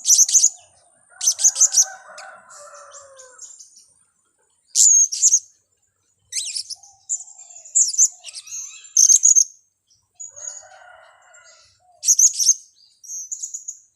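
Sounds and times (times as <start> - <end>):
parrots chirping: 0.0 - 0.6, 6.3 - 6.9, 7.7 - 9.5.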